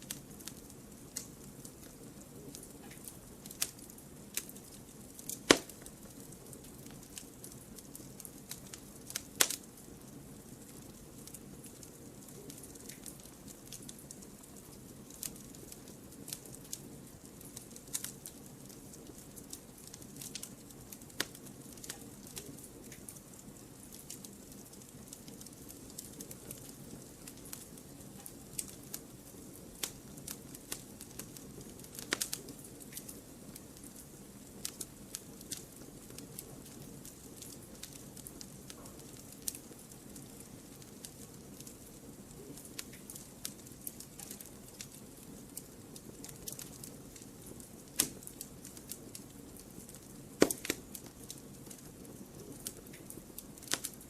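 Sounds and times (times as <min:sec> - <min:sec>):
low steady fire hiss: 0:00.0 - 0:54.0
wood fire crackling and popping: 0:00.0 - 0:54.0.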